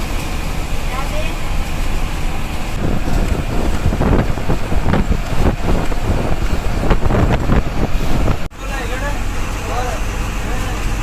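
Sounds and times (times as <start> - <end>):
wind gusting on microphone: 0.0 - 8.5
bus engine and road noise: 0.0 - 11.0.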